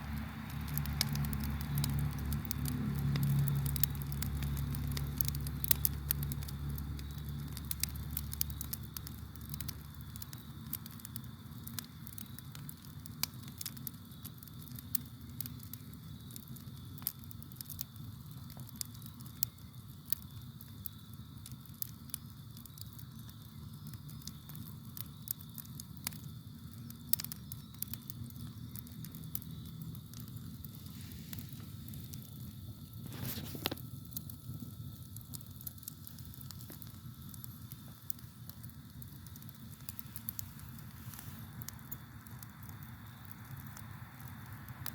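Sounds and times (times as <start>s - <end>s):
campfire wood crackling: 0.0s - 44.9s.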